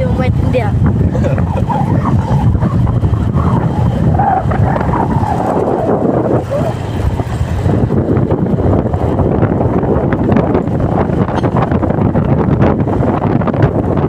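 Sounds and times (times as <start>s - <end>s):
faint voices: 0.0s - 5.5s
wind buffeting microphone: 0.0s - 14.0s.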